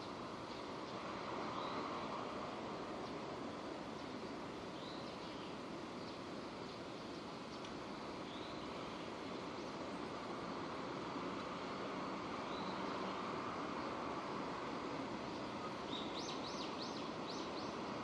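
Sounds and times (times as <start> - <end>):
steady rain falling: 0.1 - 18.0
bird chirping faintly: 15.3 - 17.8.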